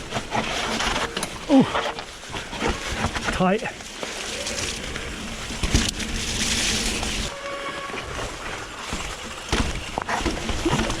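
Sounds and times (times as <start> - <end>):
tyre and wind noise: 0.0 - 11.0
bike knocking on rocks: 8.8 - 11.0.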